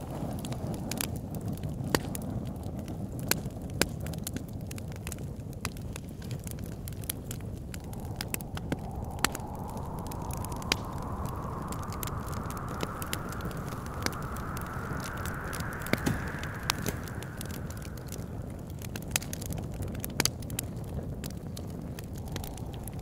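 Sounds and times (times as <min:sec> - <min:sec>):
wood fire crackling and popping: 0:05.6 - 0:23.0
whistling wind: 0:06.5 - 0:20.5, 0:21.2 - 0:23.0.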